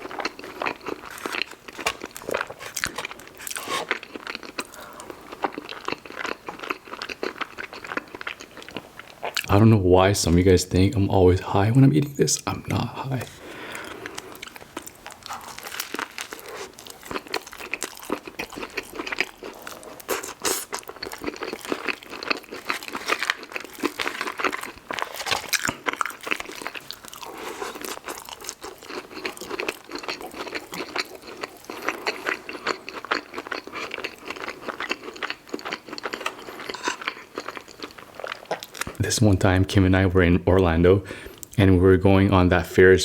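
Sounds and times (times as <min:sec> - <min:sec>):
person chewing crunchy food: 0:00.0 - 0:09.5, 0:13.2 - 0:39.0.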